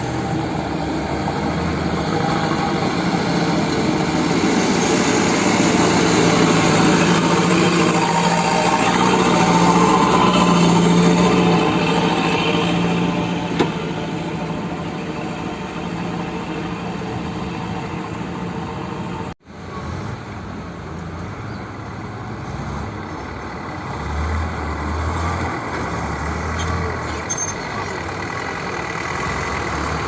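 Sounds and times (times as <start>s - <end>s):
heavy diesel engine running: 0.0s - 20.8s, 21.7s - 30.0s.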